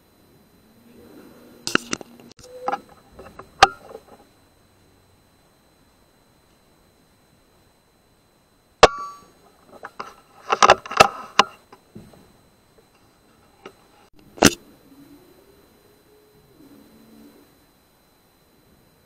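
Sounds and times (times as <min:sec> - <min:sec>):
brief metallic ring: 0:08.8 - 0:09.3.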